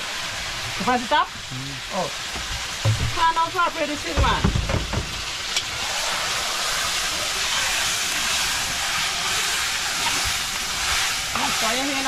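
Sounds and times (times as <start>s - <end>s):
meat sizzling in a wok: 0.0s - 12.0s.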